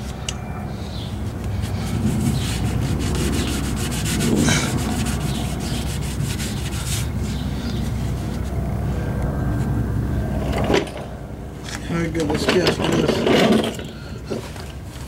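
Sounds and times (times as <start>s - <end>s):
steady low rumble: 0.0s - 15.0s
scratchy rubbing and scraping: 1.2s - 8.6s.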